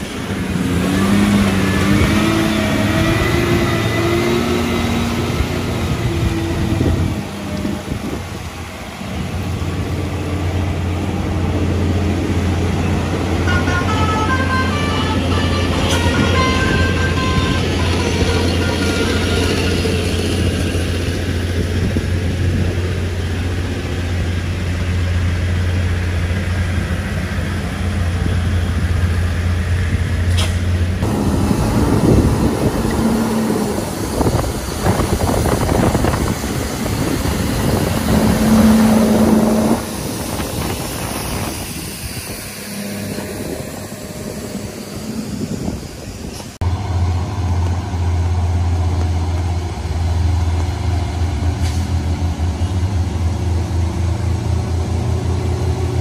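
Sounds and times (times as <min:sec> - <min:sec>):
vehicle engines droning: 0:00.0 - 0:56.0.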